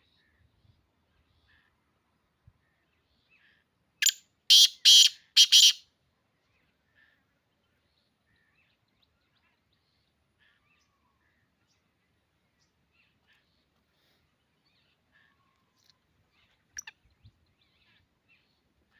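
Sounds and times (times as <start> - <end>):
faint bird chirps: 2.6 - 5.8
francolin rasping call: 4.0 - 5.8.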